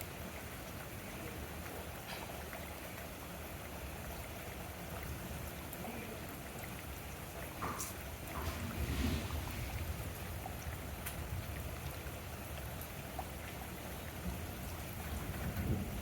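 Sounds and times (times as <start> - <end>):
steady rain hiss: 0.0 - 16.0
raindrop ticks: 5.7 - 13.6.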